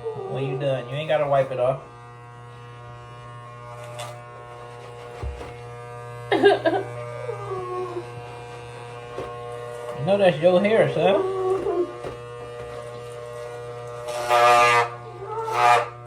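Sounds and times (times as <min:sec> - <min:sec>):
electric hair clippers buzzing: 0:00.0 - 0:16.0
child crying out: 0:07.2 - 0:08.1, 0:11.0 - 0:12.0, 0:15.1 - 0:15.8.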